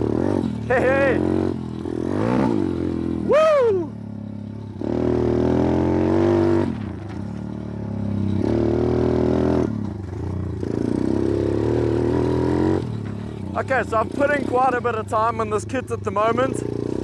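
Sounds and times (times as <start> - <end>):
motorbike engine revving: 0.0 - 17.0.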